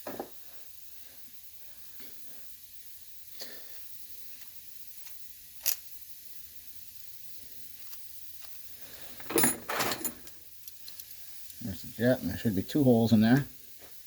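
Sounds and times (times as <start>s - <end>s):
metal parts clattering and rubbing: 9.2s - 11.2s.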